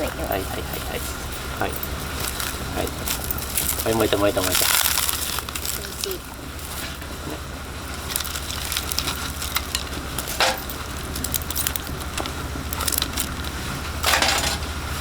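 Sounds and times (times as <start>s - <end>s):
fire crunching bursts: 0.0s - 15.0s
kindling fire crackling: 0.0s - 15.0s.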